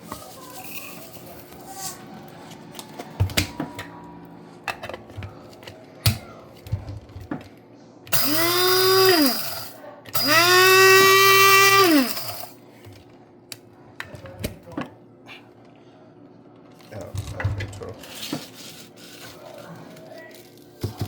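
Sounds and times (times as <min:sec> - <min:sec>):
salt crystals rattling: 0:00.1 - 0:01.8
coffee grinder motor whining: 0:08.1 - 0:12.6.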